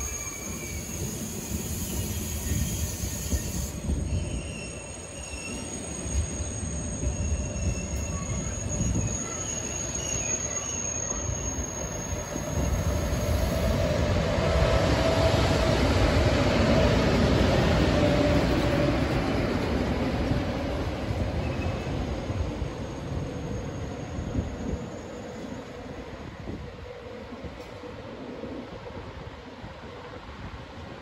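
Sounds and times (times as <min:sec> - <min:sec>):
wheel squeals: 0:00.0 - 0:13.5
train wheels rumbling: 0:00.0 - 0:28.8.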